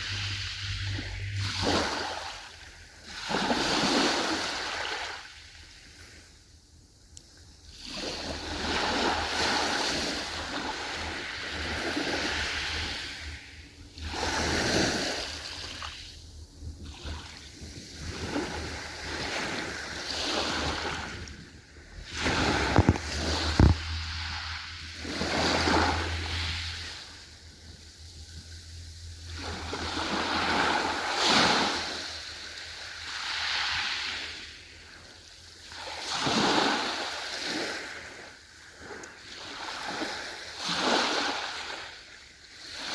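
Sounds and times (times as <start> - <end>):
ocean waves surging: 0.0 - 5.3, 7.7 - 34.7, 35.7 - 42.0
low steady rumble: 0.0 - 33.2.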